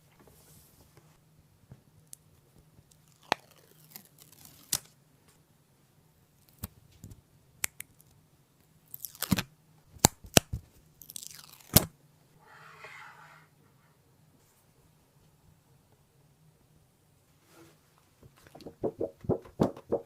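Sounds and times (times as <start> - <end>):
short scraping strokes: 12.4 - 13.6.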